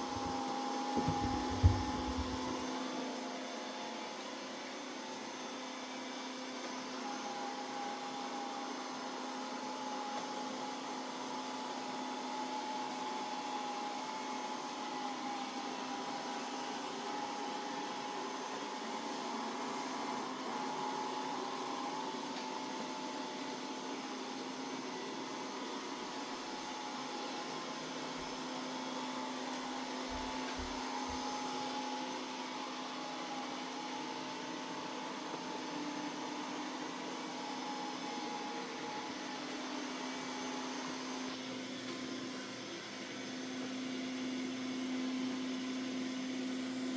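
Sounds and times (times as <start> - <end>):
robot vacuum fan whining: 0.0 - 2.7.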